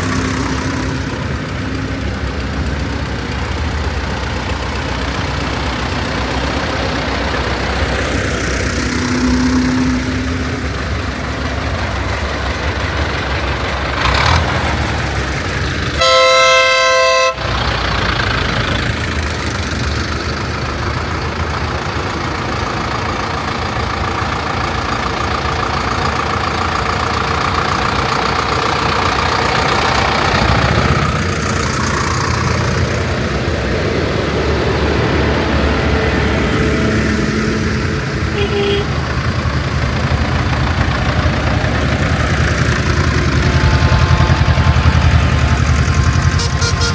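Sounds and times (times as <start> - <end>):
tractor engines running: 0.0 - 46.9
loud horn blast: 15.9 - 17.6, 38.3 - 39.2, 46.2 - 46.9.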